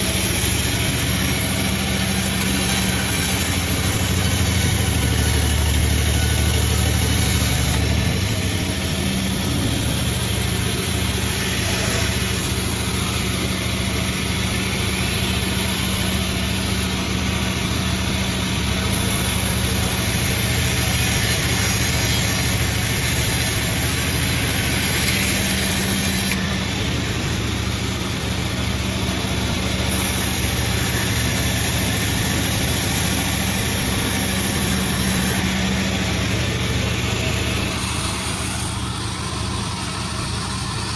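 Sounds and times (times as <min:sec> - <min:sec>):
sawmill machine drone: 0:00.0 - 0:40.9.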